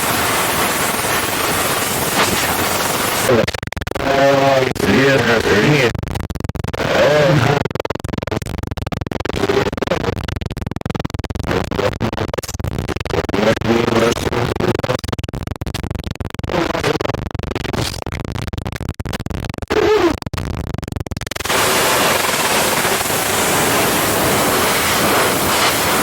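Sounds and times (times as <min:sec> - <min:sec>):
crackle: 0:00.0 - 0:04.1, 0:05.8 - 0:26.0
voice breaking up: 0:06.8 - 0:07.7.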